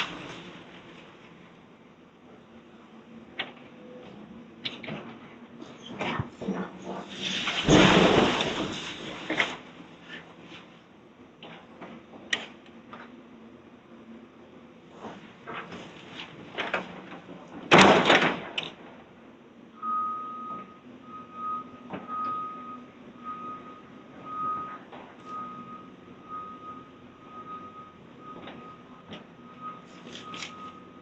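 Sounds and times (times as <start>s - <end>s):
demolition debris clattering: 0.0s - 1.5s, 5.9s - 10.2s, 15.0s - 19.0s
heavy machine engine humming: 0.0s - 17.7s, 18.8s - 31.0s
loud crash of falling material: 7.0s - 9.7s, 17.7s - 18.6s
back-up alarm beeping: 19.8s - 31.0s.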